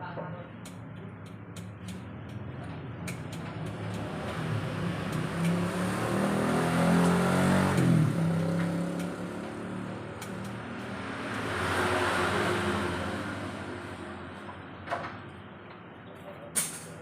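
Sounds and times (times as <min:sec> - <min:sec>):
motorcycle engine revving: 0:02.4 - 0:14.4.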